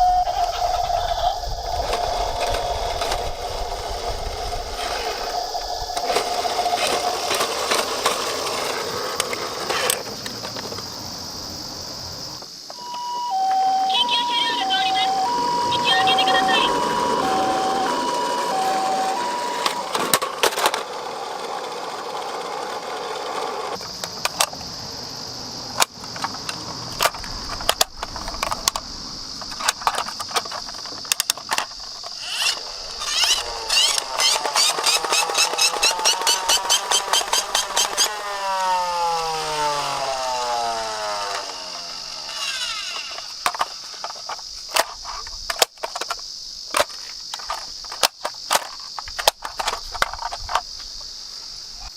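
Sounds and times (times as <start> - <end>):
sliding falling tone: 0.0 - 9.8, 12.8 - 23.7, 32.2 - 43.8
toy cars clattering down slope: 0.0 - 11.0, 14.3 - 24.7, 25.7 - 51.0
two-tone beep: 12.8 - 19.9
sharp clicks: 29.4 - 38.2.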